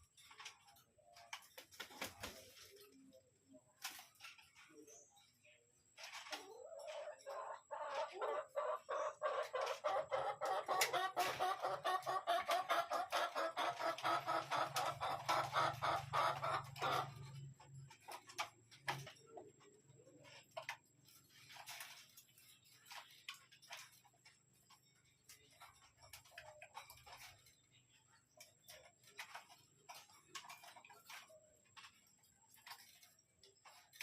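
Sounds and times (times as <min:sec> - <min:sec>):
bird clucking call: 0:06.6 - 0:17.2.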